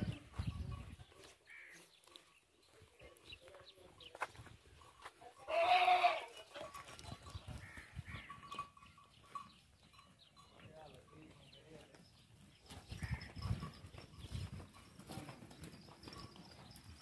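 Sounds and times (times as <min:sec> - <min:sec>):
goat bleating: 0:05.4 - 0:06.6.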